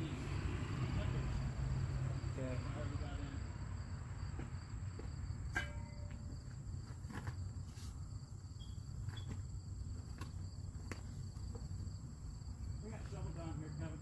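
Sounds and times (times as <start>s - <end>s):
insects trilling: 0.8s - 14.0s
sharp ringing clink: 5.5s - 6.3s.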